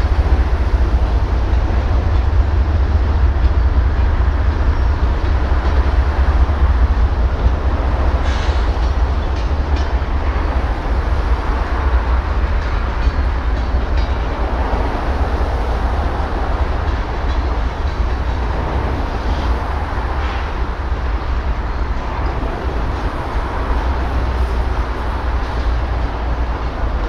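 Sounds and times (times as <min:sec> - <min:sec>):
steel wheels rumbling on rail: 0:00.0 - 0:27.0
wheels clicking over rail joints: 0:00.0 - 0:27.0.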